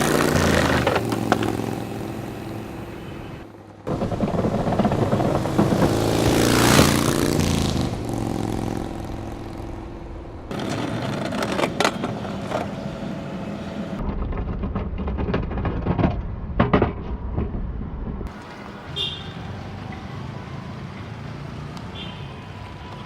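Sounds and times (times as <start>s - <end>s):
vehicle engine running: 0.0s - 14.0s
sharp knocks: 3.9s - 7.8s.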